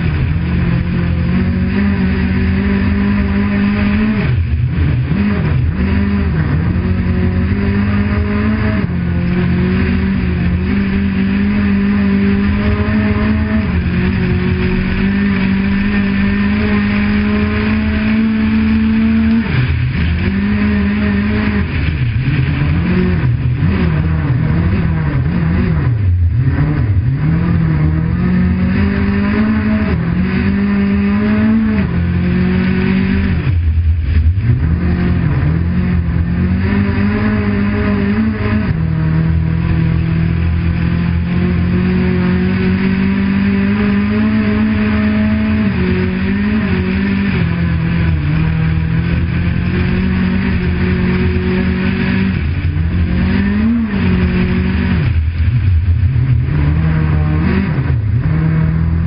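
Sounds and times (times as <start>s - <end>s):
car engine revving: 0.0s - 59.0s
tyre and road rumble: 0.0s - 59.0s.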